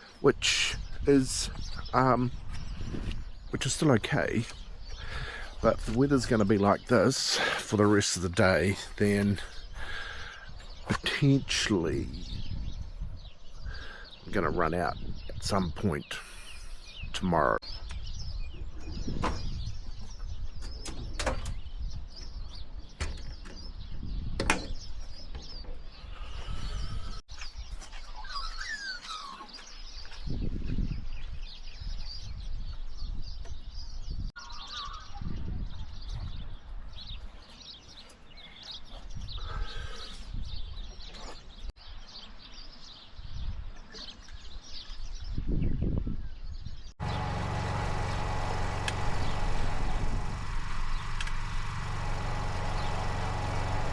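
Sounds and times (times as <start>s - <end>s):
birds chirping: 0.0s - 43.2s, 44.1s - 53.9s
low outdoor rumble: 47.0s - 53.9s.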